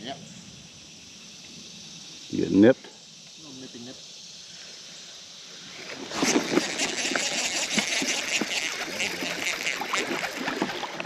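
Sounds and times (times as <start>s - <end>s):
creek water splashing: 5.6s - 11.0s.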